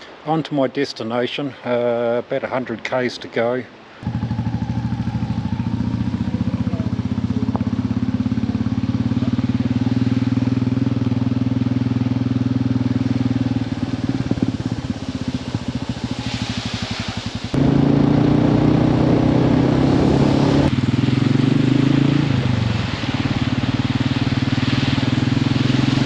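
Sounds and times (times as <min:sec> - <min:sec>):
motorcycle engine idling: 0:04.0 - 0:19.8.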